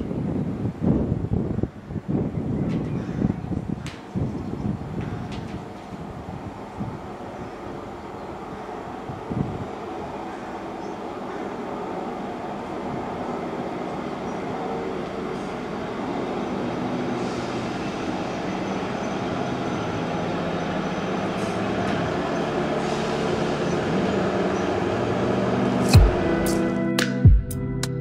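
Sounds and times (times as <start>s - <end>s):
train engine hum: 0.0s - 26.9s
train wheels on rails: 3.8s - 25.9s.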